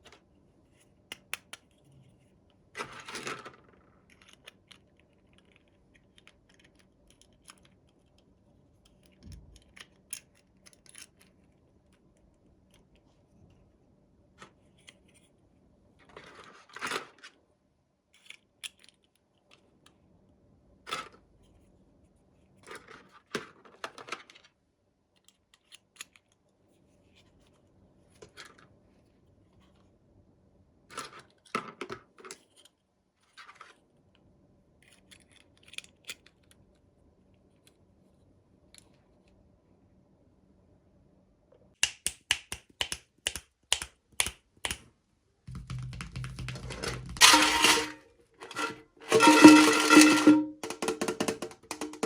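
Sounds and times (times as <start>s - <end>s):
light clicks and taps of toys: 0.8s - 2.6s, 3.3s - 13.6s, 18.2s - 20.0s, 25.1s - 26.4s, 41.8s - 44.9s.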